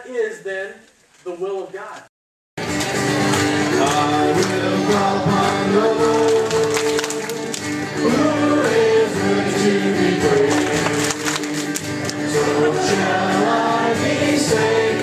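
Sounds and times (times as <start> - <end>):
group singing worship song: 3.5 - 15.0.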